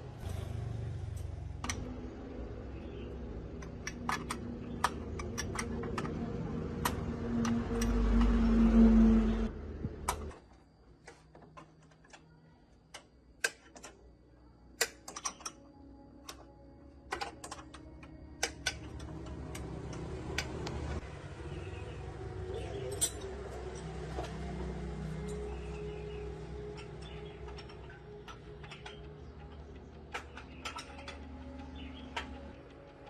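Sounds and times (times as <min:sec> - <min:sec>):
machine hum: 0:00.0 - 0:12.2, 0:15.6 - 0:33.0
tools clicking and tapping: 0:03.5 - 0:08.5, 0:12.9 - 0:14.0, 0:14.8 - 0:21.0, 0:22.8 - 0:33.0.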